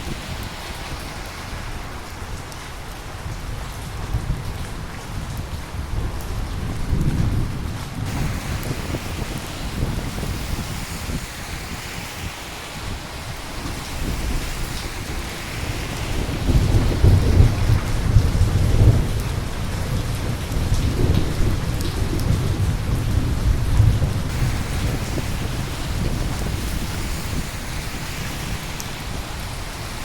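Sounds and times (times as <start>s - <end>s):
steady rain: 0.0s - 30.0s
thunder rumbling: 6.0s - 30.0s.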